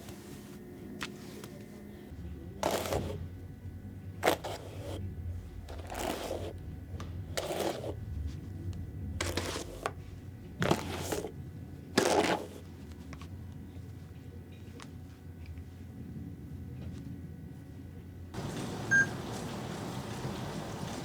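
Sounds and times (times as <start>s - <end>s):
steady low hum: 0.0s - 21.0s
rustling scraping handling sounds: 2.6s - 3.3s, 4.2s - 5.0s, 5.6s - 6.6s, 7.3s - 8.6s, 9.2s - 11.4s, 12.0s - 15.9s.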